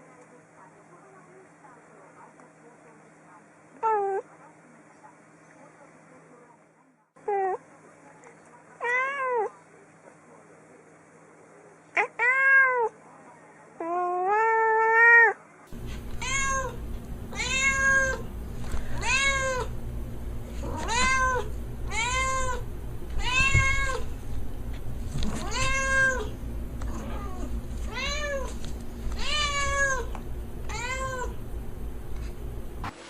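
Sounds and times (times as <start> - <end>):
low steady hum: 15.5 - 33.0
kittens meowing: 20.7 - 22.6, 23.2 - 24.1, 25.2 - 28.5.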